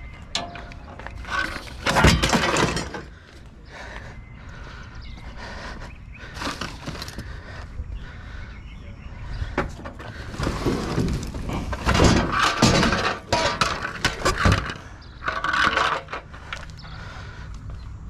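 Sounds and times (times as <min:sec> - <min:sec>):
junk being rummaged through: 0:00.3 - 0:03.3, 0:06.4 - 0:07.3, 0:09.6 - 0:16.7.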